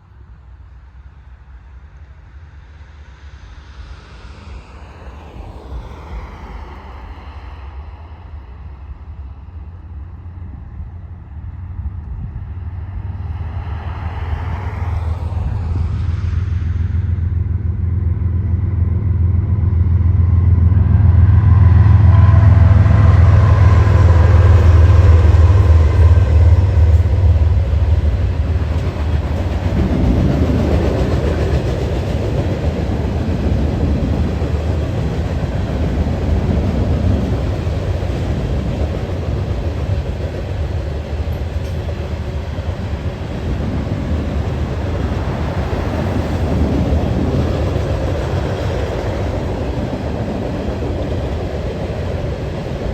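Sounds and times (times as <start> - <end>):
train engine rumble: 0.0 - 52.9
train cars rolling on rails: 20.2 - 52.9.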